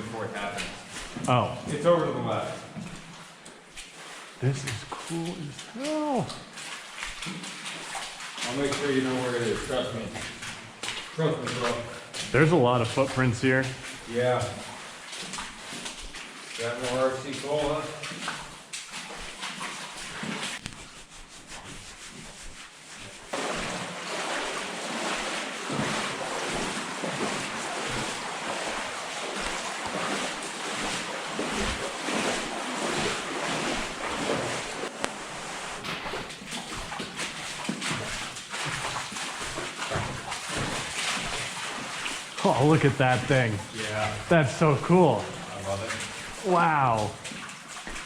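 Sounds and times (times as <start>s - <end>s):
water splashing and sloshing: 0.0s - 48.0s.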